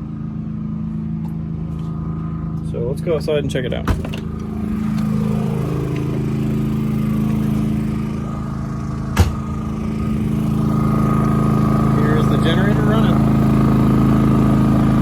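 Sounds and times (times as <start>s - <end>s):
generator running: 0.0s - 15.0s
sharp knock: 9.2s - 9.4s.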